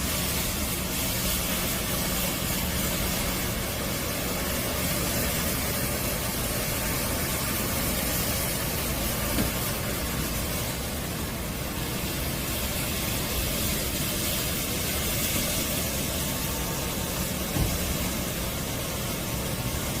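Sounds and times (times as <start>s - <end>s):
floor scrubber motor running: 0.0s - 20.0s
brief knock: 17.5s - 17.8s.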